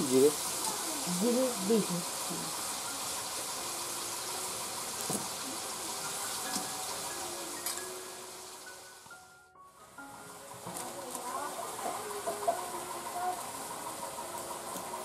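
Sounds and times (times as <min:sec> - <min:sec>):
curry sizzling in oil: 0:00.0 - 0:09.1.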